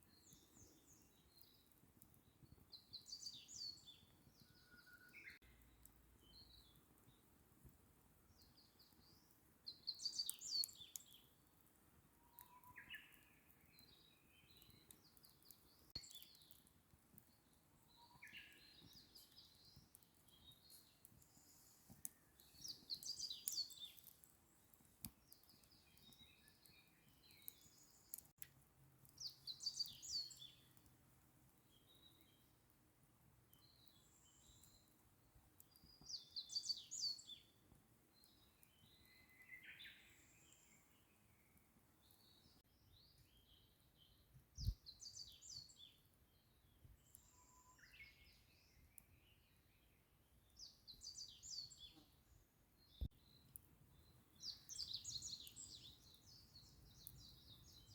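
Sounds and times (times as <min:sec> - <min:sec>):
songbird singing: 0:00.0 - 0:07.2, 0:08.3 - 0:11.4, 0:12.2 - 0:28.4, 0:29.1 - 0:30.8, 0:33.5 - 0:35.0, 0:35.7 - 0:57.9
campfire crackling: 0:00.0 - 0:43.3, 0:52.9 - 0:57.9
wild birds chirping: 0:17.4 - 0:28.4, 0:29.1 - 0:30.8, 0:35.7 - 0:37.6, 0:50.5 - 0:57.9.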